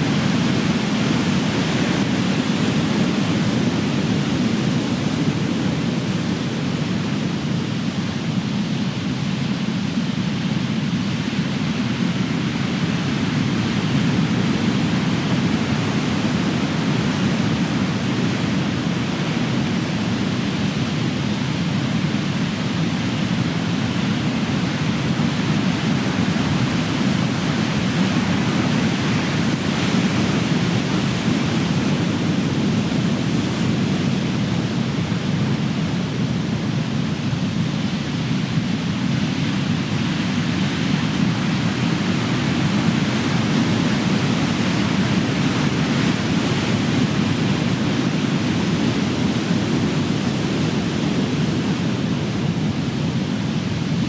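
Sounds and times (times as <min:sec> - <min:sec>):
ocean waves breaking on shore: 0:23.8 - 0:54.0.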